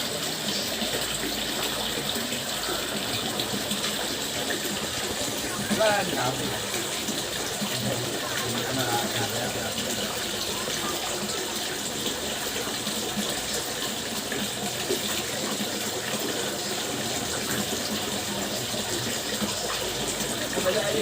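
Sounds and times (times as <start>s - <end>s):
water fountain splashing: 0.0s - 21.0s.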